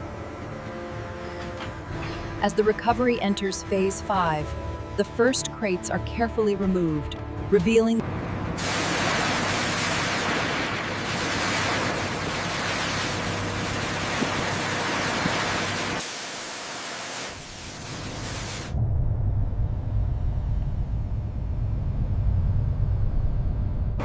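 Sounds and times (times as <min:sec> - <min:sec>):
steady rushing hiss: 0:08.6 - 0:18.7
low rumble: 0:18.7 - 0:24.0.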